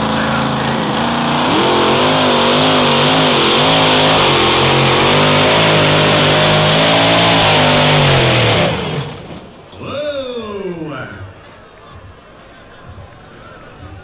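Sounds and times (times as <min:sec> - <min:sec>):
truck engine revving: 0:00.0 - 0:09.5.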